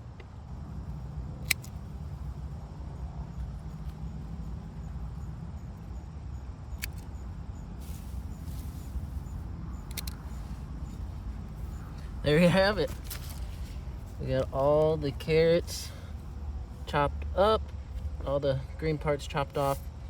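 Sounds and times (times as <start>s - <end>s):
sharp cutting clicks: 1.3s - 2.2s, 6.7s - 7.3s, 9.7s - 11.1s
leaves rustling: 7.7s - 9.6s, 10.2s - 15.0s.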